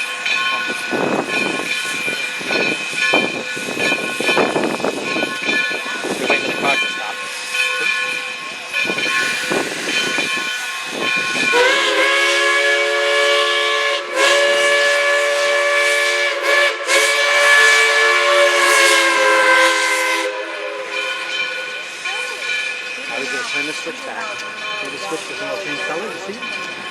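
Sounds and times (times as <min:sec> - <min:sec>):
locomotive chime whistle: 0:00.0 - 0:26.9
hiss: 0:07.2 - 0:13.7.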